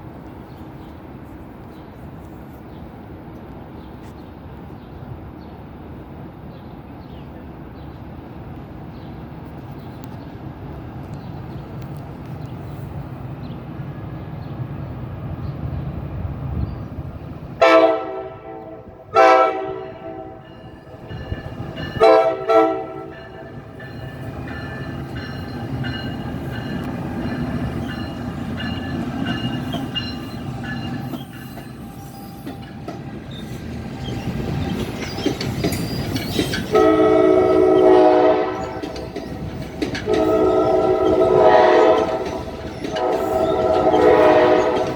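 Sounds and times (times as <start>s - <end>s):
train wheels rumbling on rail: 0.0s - 44.9s
train horn blasts: 17.6s - 21.2s, 21.8s - 25.6s, 36.7s - 39.2s, 40.0s - 44.9s
thin high squeal: 27.2s - 36.7s.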